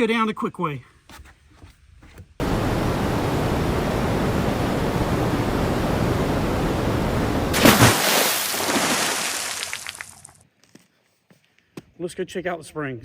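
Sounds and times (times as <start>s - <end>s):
person sliding down water slide: 2.4s - 10.3s.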